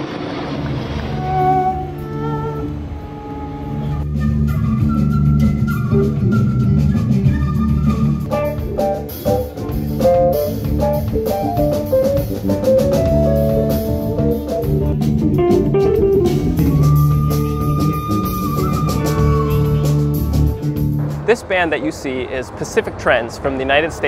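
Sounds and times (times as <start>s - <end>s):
bass guitar: 0.0s - 21.3s
electric guitar: 0.0s - 21.3s
drum kit: 3.6s - 21.8s.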